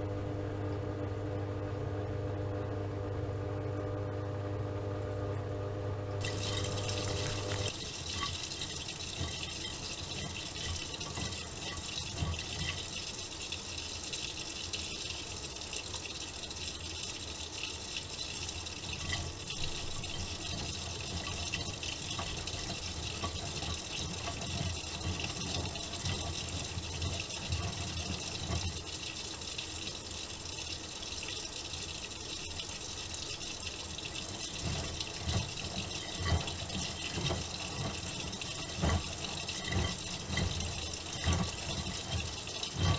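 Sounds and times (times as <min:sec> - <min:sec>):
water rushing into washing machine: 0:06.0 - 0:42.9.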